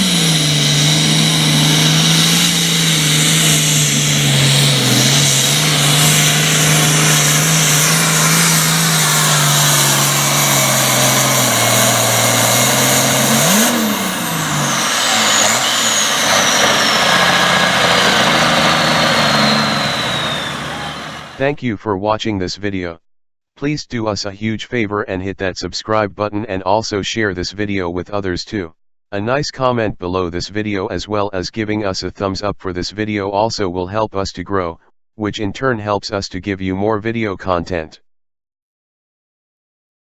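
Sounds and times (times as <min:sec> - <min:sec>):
engine revving: 0:00.0 - 0:21.4
high whine: 0:00.0 - 0:21.4
tractor diesel engine idling: 0:00.0 - 0:21.4.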